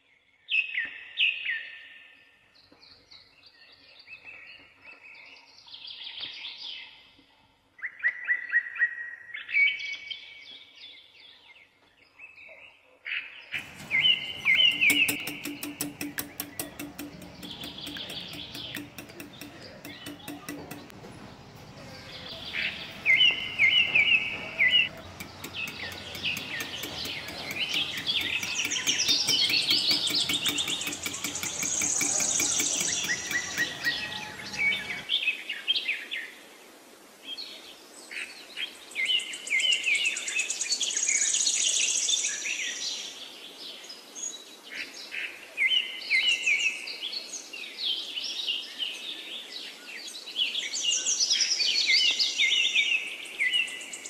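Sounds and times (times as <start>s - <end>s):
small birds chirping: 13.6s - 35.1s.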